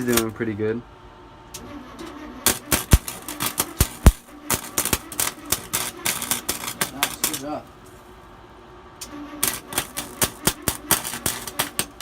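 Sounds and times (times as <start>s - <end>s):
welder arc sputtering and crackling: 0.0s - 0.5s, 2.4s - 7.7s, 9.4s - 12.0s.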